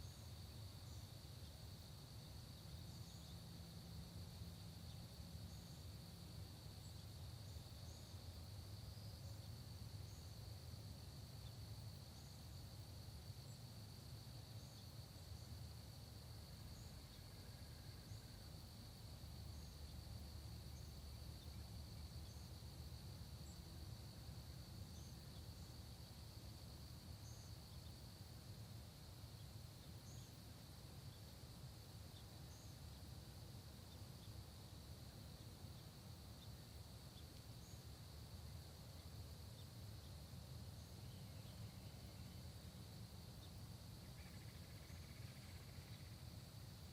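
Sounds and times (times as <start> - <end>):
high trill of insects: 0.0 - 46.9.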